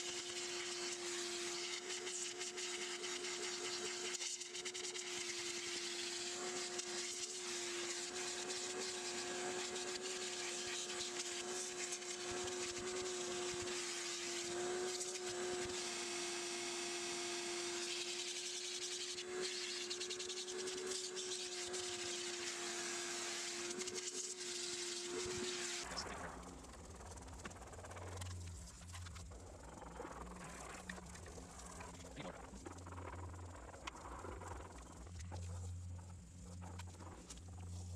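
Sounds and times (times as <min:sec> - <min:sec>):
shop vacuum humming: 0:00.0 - 0:26.5.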